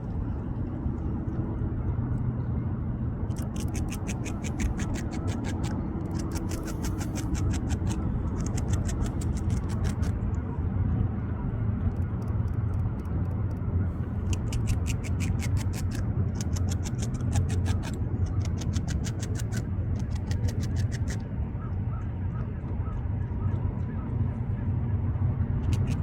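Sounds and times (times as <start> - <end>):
steady low rumble: 0.0 - 26.0
beaver gnawing bark: 3.3 - 10.2, 14.0 - 21.2, 25.6 - 26.0.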